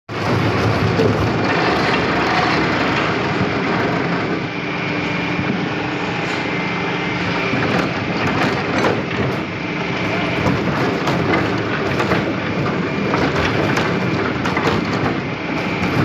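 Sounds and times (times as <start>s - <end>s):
power saw cutting wood: 0.4s - 4.1s.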